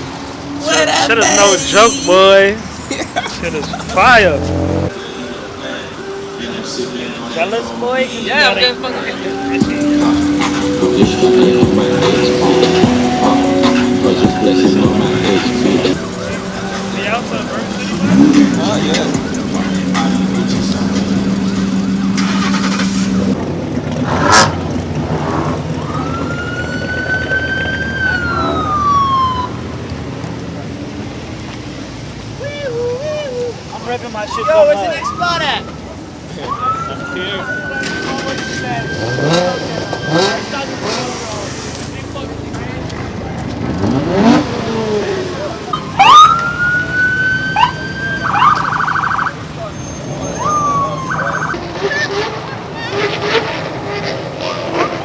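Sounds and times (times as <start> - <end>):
car engines rumbling: 0.0 - 55.0
police siren whoops and warble: 25.7 - 29.8, 32.4 - 40.6, 45.7 - 52.3
rising and falling wail: 50.1 - 52.6.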